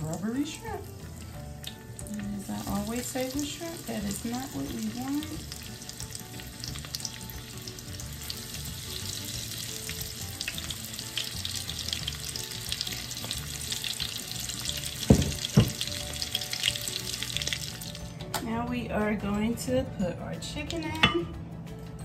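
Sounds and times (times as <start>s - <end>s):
shrimp sizzling in oil: 0.0s - 18.2s
dull thumps: 15.0s - 15.9s.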